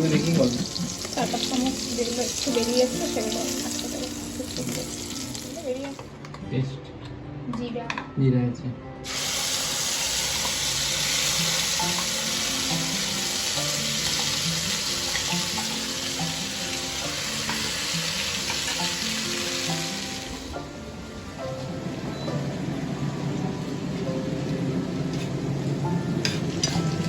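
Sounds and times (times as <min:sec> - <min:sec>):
oil sizzling in a pan: 0:00.0 - 0:06.1, 0:09.0 - 0:20.6.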